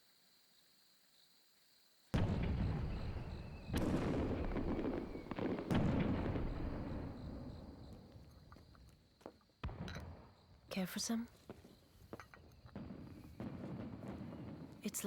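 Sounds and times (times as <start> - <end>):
rumbling crackle of fireworks: 2.1 - 15.0
fireworks booming: 2.2 - 8.6, 9.6 - 10.7, 11.3 - 15.0.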